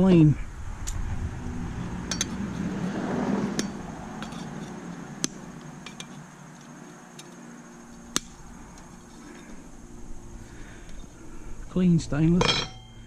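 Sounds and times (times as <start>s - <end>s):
sharp metallic clanks: 2.0s - 2.5s, 3.5s - 6.2s, 12.3s - 13.0s
hand tools clinking on metal: 2.1s - 2.4s, 3.6s - 7.4s, 12.3s - 13.0s.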